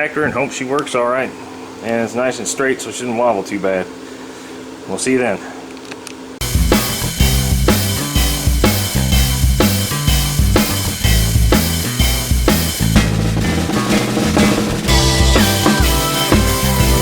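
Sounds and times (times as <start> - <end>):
music with drum beat and bass: 6.4 - 17.0.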